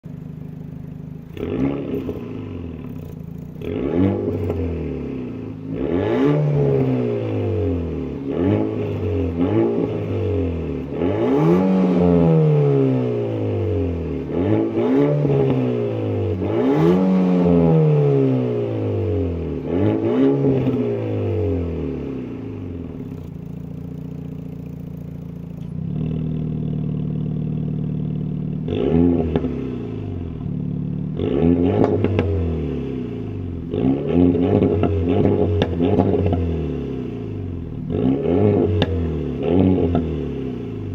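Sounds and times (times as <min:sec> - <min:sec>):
car engine idling: 0:00.0 - 0:06.1, 0:18.0 - 0:31.2
car engine revving: 0:00.4 - 0:40.9
exhaust cracks: 0:01.2 - 0:13.1, 0:28.4 - 0:32.6, 0:33.6 - 0:36.6.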